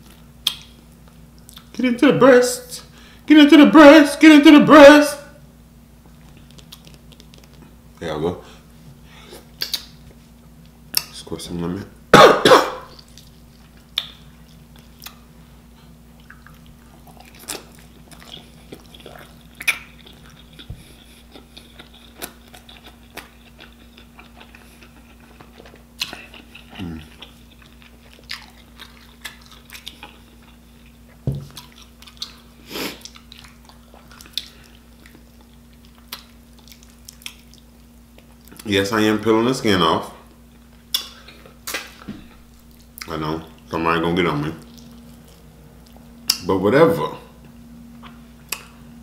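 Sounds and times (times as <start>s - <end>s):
wet chewing with smacks: 0.0s - 1.8s, 6.1s - 7.8s, 9.4s - 11.1s, 12.8s - 15.2s, 16.1s - 38.7s, 44.6s - 46.4s
faint steady hum: 0.0s - 49.0s.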